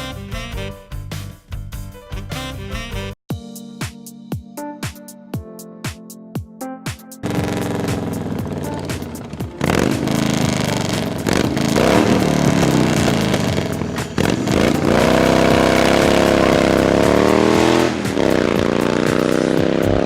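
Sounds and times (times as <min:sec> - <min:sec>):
motorcycle engine revving: 0:07.2 - 0:20.0.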